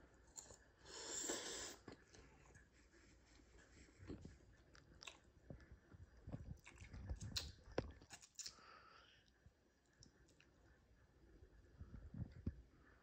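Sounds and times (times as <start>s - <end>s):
person chewing and slurping noodles: 0.2s - 2.6s.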